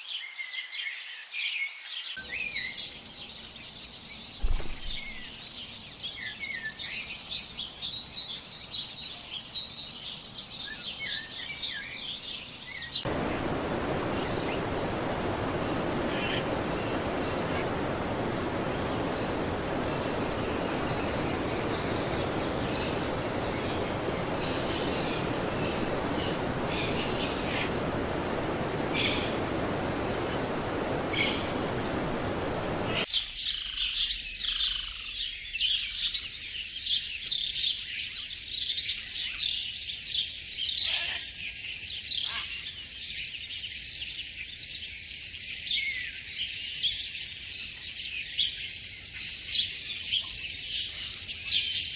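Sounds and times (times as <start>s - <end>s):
birds chirping and twittering: 1.5s - 43.4s
steady rushing noise: 13.1s - 33.1s.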